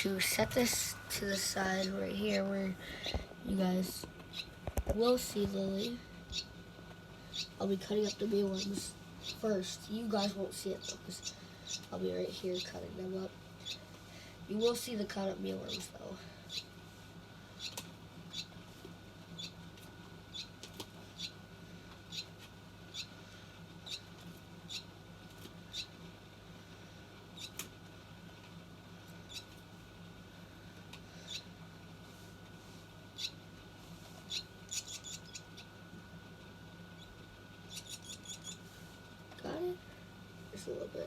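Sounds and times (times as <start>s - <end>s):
steady low hum: 0.0s - 41.0s
baby bird peeping: 0.2s - 16.8s, 17.4s - 18.6s, 19.2s - 26.0s, 27.3s - 27.7s, 29.1s - 29.6s, 31.0s - 31.6s, 33.1s - 33.5s, 34.2s - 35.8s, 36.9s - 38.7s.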